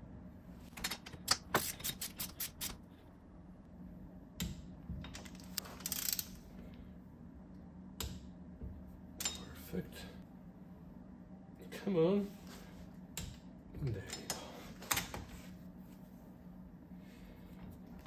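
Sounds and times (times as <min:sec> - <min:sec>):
ratcheting torque wrench clicking: 0:05.6 - 0:06.4.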